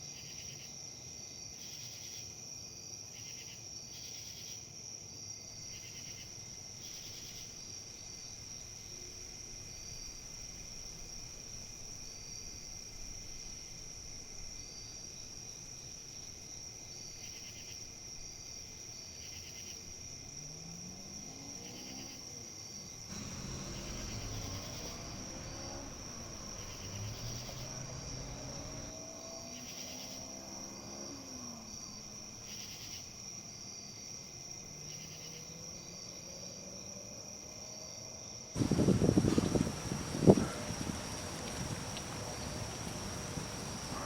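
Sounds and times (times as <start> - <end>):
insect high continuous trill: 0.0 - 44.0
wind in leaves: 5.6 - 34.8, 35.5 - 44.0
insect pulsed calls: 23.1 - 30.2, 38.6 - 44.0.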